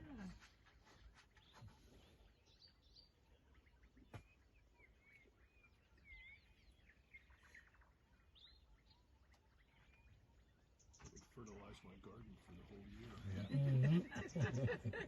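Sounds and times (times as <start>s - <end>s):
faint bird chirps and whistles: 0.1s - 12.0s.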